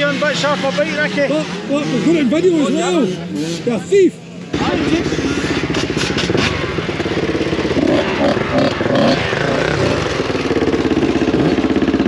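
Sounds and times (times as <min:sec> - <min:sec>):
motocross bike engine running: 0:04.5 - 0:12.0.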